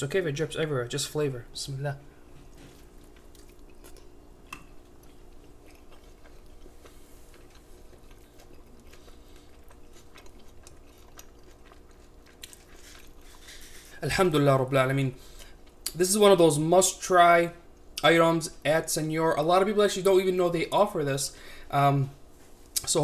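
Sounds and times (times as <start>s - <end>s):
steady low hum: 0.0s - 23.0s
wet mouth clicks chewing: 3.0s - 13.6s.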